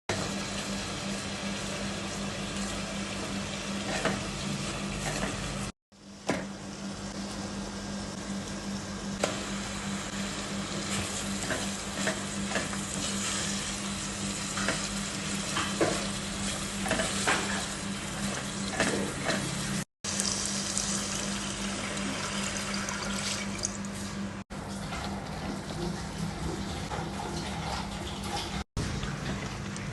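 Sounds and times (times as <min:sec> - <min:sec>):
food sizzling in a frying pan: 0:09.2 - 0:23.7.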